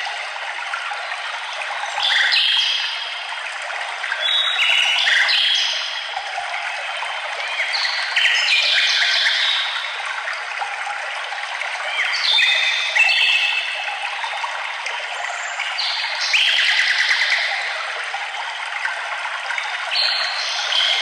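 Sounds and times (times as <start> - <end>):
forest stream rushing: 0.0 - 21.0
songbirds singing: 4.1 - 6.2, 6.8 - 10.0, 11.8 - 14.3, 19.6 - 21.0.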